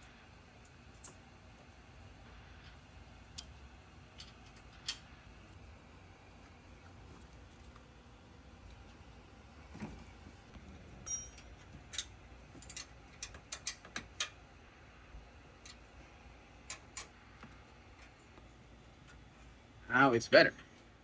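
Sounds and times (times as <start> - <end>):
metallic clink: 11.0 - 14.3.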